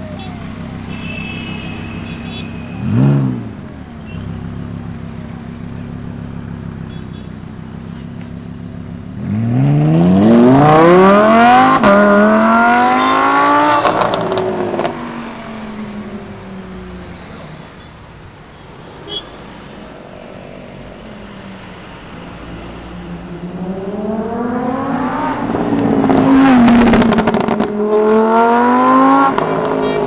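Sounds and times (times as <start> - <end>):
sports car accelerating away: 9.1 - 16.2, 23.3 - 29.8.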